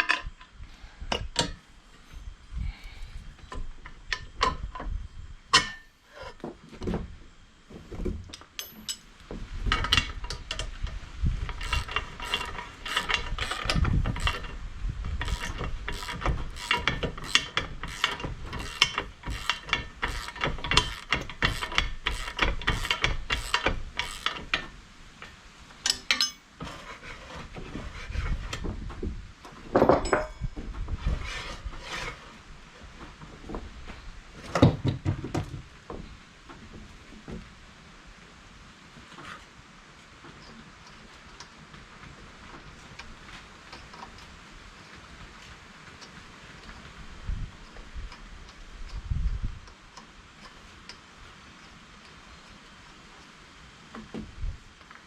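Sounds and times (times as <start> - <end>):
ratchet wrench clicking: 11.5 - 14.6, 15.2 - 24.4.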